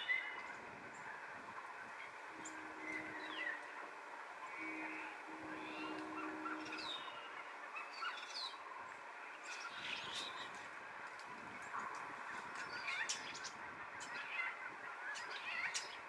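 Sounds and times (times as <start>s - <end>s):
birds chirping and calling: 0.0s - 10.8s, 11.6s - 16.0s
steady low hum: 0.0s - 15.6s.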